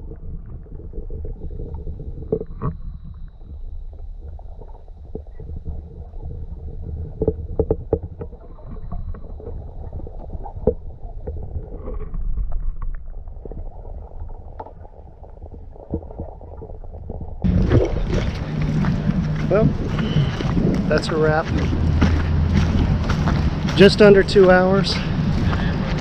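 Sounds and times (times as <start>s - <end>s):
muffled underwater rumble: 0.0s - 26.0s
underwater clicks and pops: 0.1s - 13.7s.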